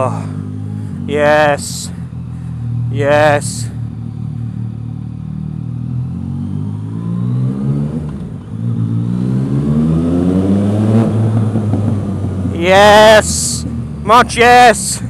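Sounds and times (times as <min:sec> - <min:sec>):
motorcycle engine accelerating: 0:03.6 - 0:12.6.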